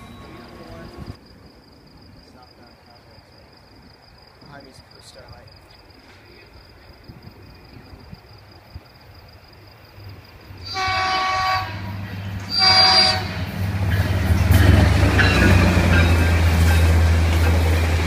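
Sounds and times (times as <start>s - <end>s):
rush of passing train: 0.0s - 18.0s
train horn blasts: 10.6s - 13.6s.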